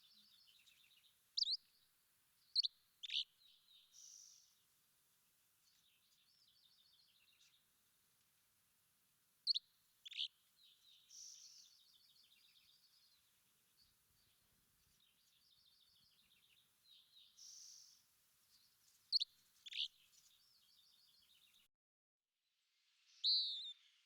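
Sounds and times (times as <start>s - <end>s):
bird twittering trills: 0.0s - 1.7s, 2.4s - 4.5s, 9.5s - 13.2s, 18.6s - 21.6s, 23.2s - 23.8s.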